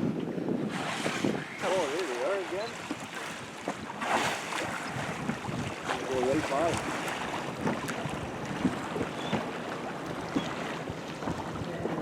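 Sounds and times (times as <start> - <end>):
wind buffeting microphone: 0.0 - 12.0
water splashing against boat hull: 0.6 - 12.0.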